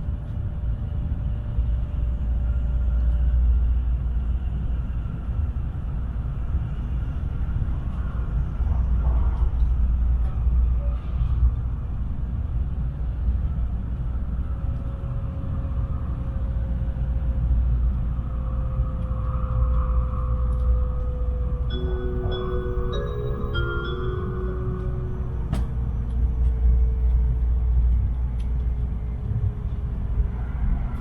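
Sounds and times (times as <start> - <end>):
faint hum: 0.0 - 31.0
train cabin rumble: 20.6 - 31.0.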